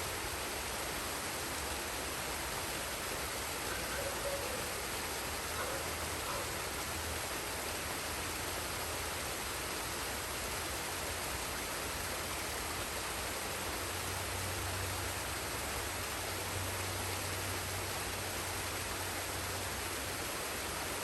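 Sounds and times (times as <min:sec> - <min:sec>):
waterfall and stream rushing: 0:00.0 - 0:21.0.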